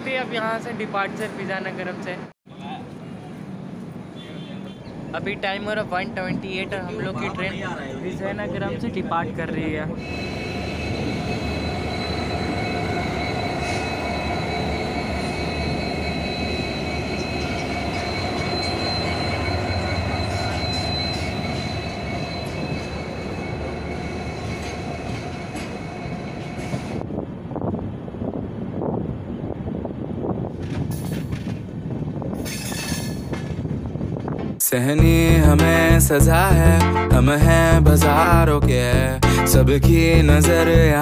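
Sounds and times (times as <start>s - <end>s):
train running rumble: 5.1s - 41.0s
high-pitched wheel squeal: 10.0s - 27.0s
wheel and rail clatter: 30.1s - 34.6s.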